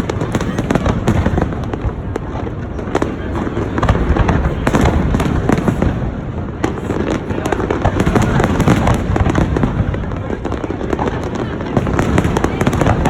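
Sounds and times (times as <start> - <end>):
fireworks booming and crackling: 0.0 - 13.0.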